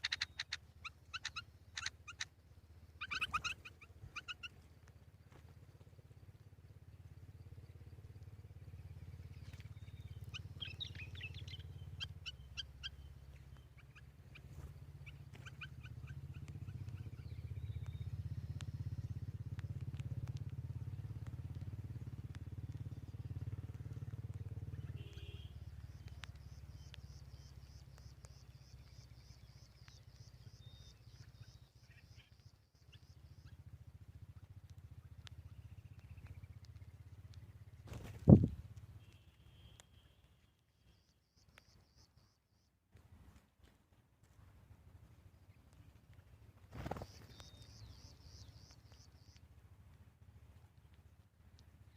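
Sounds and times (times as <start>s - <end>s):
birds chirping: 0.0s - 4.9s, 7.8s - 42.6s, 45.3s - 49.5s
steady low rumble: 2.1s - 25.0s.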